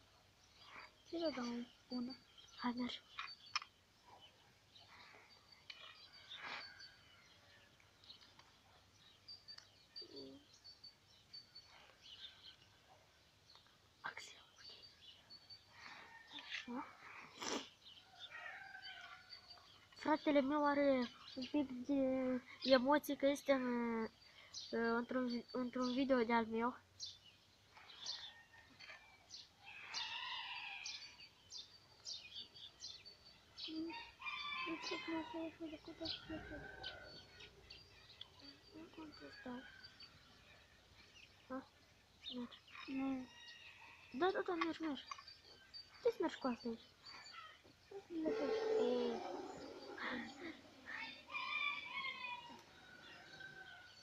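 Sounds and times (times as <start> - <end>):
faint bird chirps: 0.5 - 54.0
longer fuller bird call: 48.2 - 52.5.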